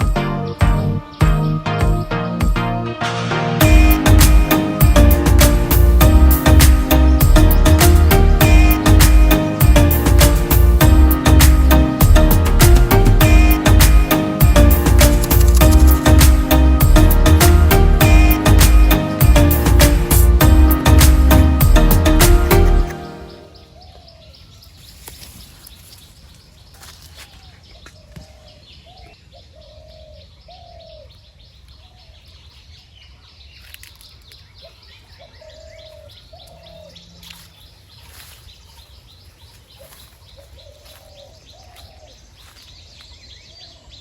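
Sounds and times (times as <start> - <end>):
small birds chirping: 22.9 - 44.0.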